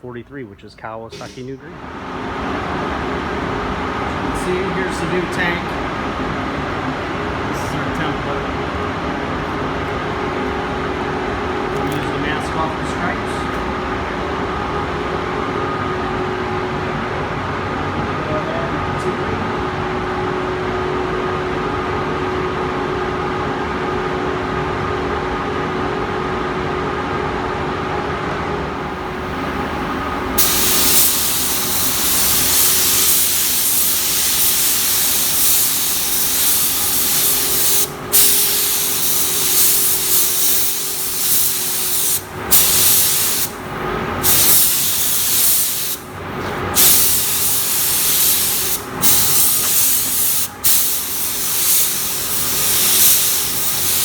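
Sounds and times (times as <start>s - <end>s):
steady machine hum: 0.0s - 54.0s
paint spray gun hissing: 1.1s - 1.5s, 30.4s - 43.6s, 44.2s - 46.1s, 46.7s - 54.0s.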